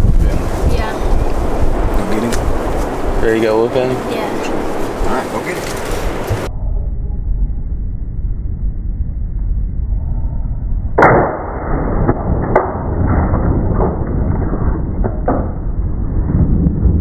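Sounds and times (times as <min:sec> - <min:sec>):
wind buffeting microphone: 0:00.0 - 0:06.5, 0:12.4 - 0:17.0.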